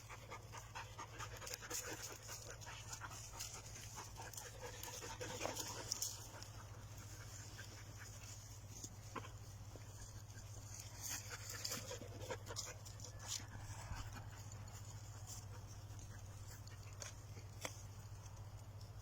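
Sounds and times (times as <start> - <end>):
dog panting: 0.0 - 18.3.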